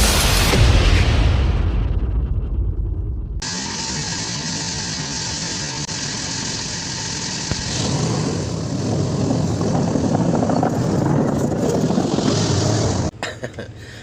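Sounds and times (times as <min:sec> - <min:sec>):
excavator diesel engine running: 0:03.4 - 0:11.4.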